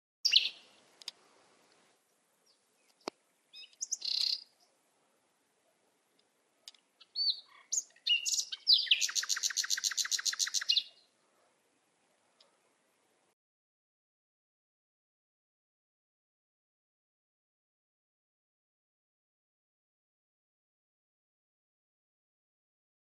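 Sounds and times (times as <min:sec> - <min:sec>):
birds chirping: 0:00.2 - 0:00.9, 0:02.0 - 0:04.8, 0:06.6 - 0:13.2
rapid bird trill: 0:07.0 - 0:11.1.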